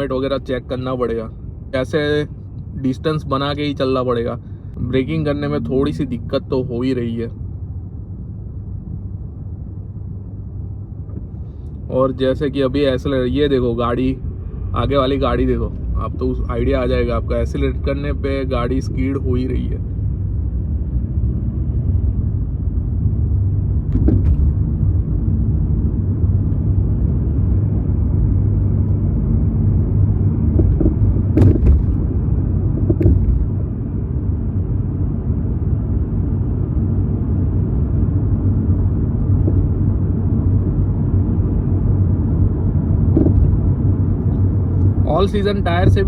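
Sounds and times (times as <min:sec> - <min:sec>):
car engine and tyres rumbling: 0:00.0 - 0:46.0
brief knocks: 0:23.9 - 0:24.5, 0:30.6 - 0:32.0, 0:32.8 - 0:33.5, 0:43.1 - 0:43.6.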